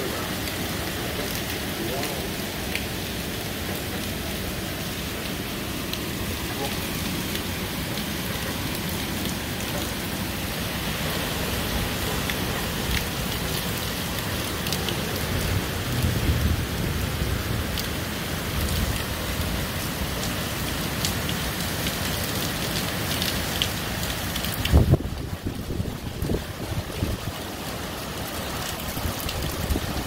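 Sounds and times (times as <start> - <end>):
heavy rain pouring on wooden deck: 0.0 - 30.0
wind rumbling on microphone: 15.2 - 17.9, 24.5 - 27.4, 28.8 - 30.0.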